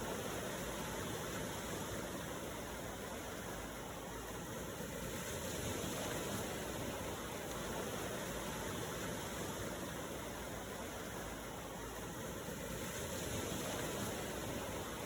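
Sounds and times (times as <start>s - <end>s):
ocean waves washing ashore: 0.0s - 15.0s.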